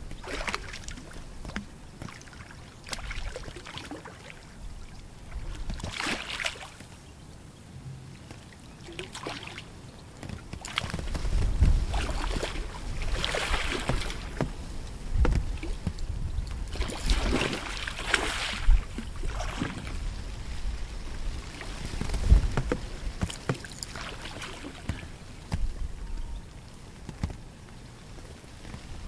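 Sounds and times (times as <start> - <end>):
rustling hiss: 0.0 - 29.0
wind buffeting microphone: 4.5 - 6.0, 9.7 - 29.0.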